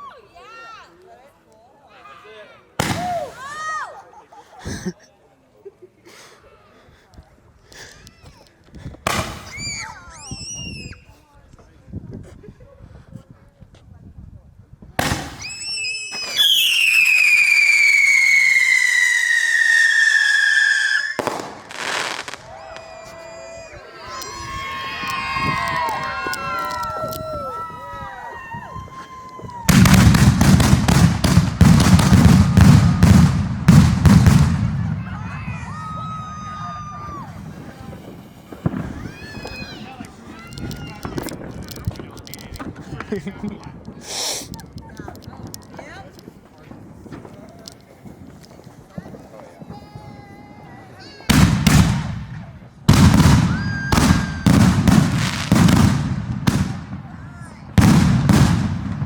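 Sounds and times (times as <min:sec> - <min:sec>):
fireworks bangs crackling: 0:02.8 - 0:03.6, 0:09.0 - 0:10.8, 0:15.0 - 0:27.4, 0:29.4 - 0:59.0.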